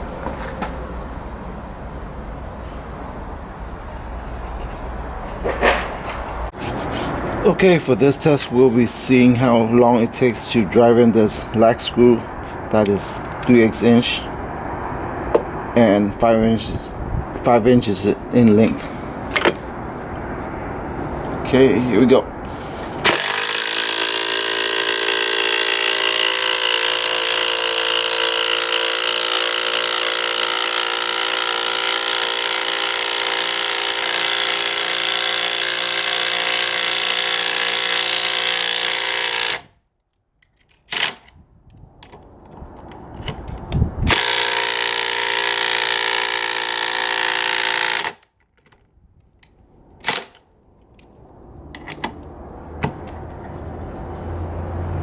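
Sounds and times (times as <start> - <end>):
impact driver hammering: 15.3 - 15.6, 19.3 - 19.7, 23.0 - 39.7, 44.1 - 48.2.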